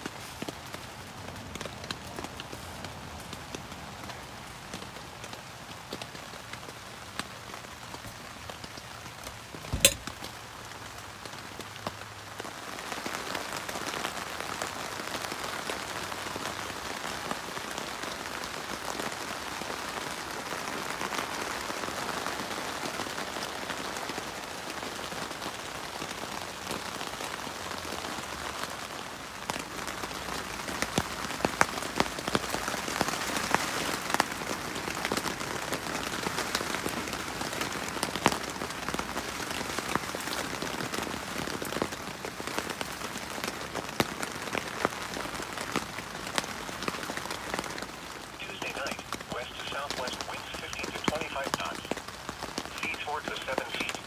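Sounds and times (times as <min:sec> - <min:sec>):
rain on tent fabric: 0:00.0 - 0:54.0
sharp knock: 0:09.7 - 0:10.1.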